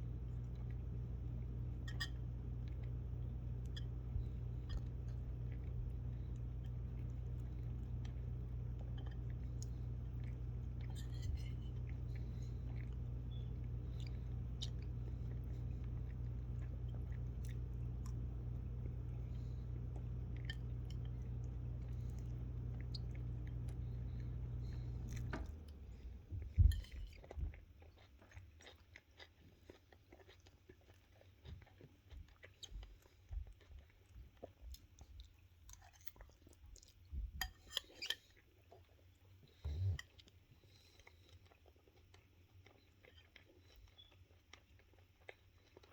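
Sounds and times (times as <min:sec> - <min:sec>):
steady low hum: 0:00.0 - 0:27.2, 0:39.5 - 0:41.1
food being chewed and crunched: 0:00.0 - 0:45.9.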